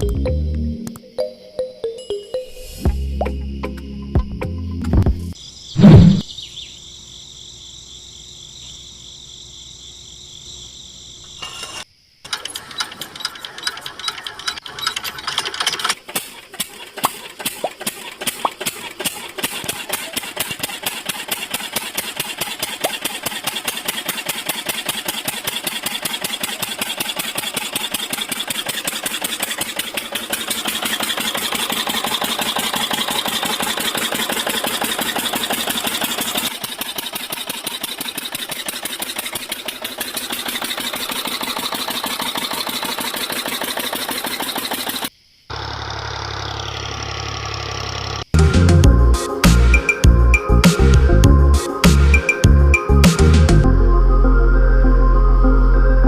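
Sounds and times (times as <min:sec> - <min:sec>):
small motor clattering: 0:11.3 - 0:48.3.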